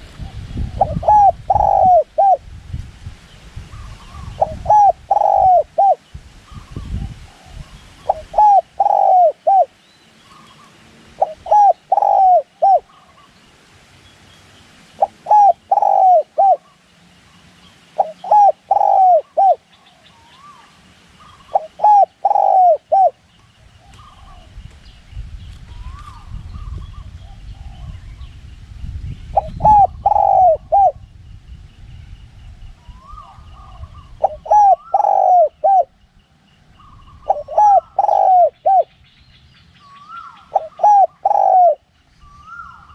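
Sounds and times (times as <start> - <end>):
low wind rumble: 0.0 - 14.0, 18.0 - 42.9
dove cooing: 0.2 - 2.4, 3.7 - 9.7, 10.3 - 13.3, 15.0 - 16.8, 18.0 - 23.2, 29.4 - 31.0, 32.9 - 36.0, 36.8 - 38.9, 39.9 - 42.9.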